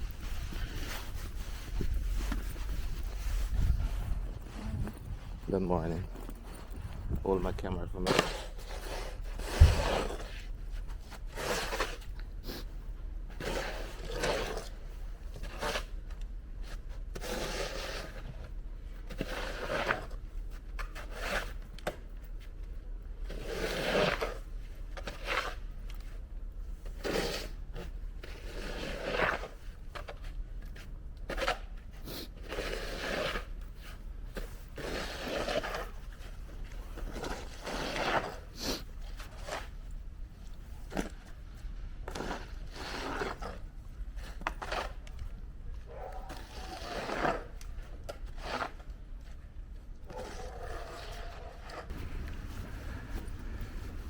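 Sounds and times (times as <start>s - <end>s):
scraping and crunching: 32.4s - 54.0s.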